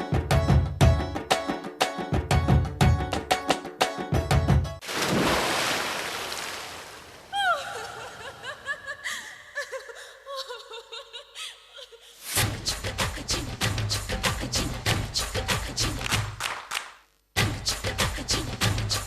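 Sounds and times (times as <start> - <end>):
dance music with a beat: 12.4 - 16.4, 17.4 - 19.0.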